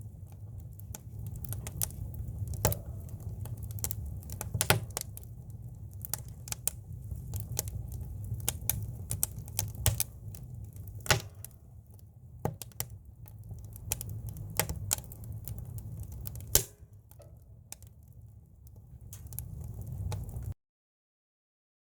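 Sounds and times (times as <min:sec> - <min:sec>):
campfire crackling and popping: 0:00.0 - 0:20.6
low steady fire rumble: 0:00.0 - 0:20.6.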